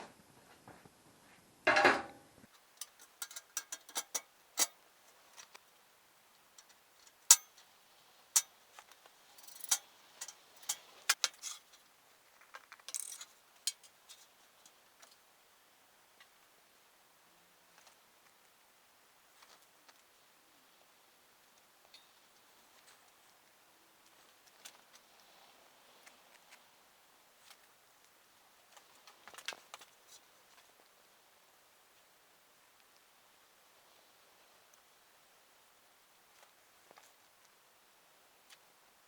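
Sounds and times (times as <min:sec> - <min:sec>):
sharp clicks and light knocks: 0:01.7 - 0:04.8
tools clattering: 0:02.8 - 0:04.8, 0:12.9 - 0:14.2.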